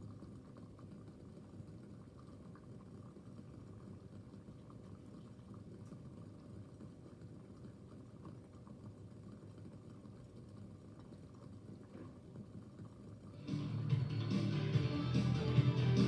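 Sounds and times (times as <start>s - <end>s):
water boiling in a flask: 0.0s - 16.0s
guitar music: 13.4s - 16.0s.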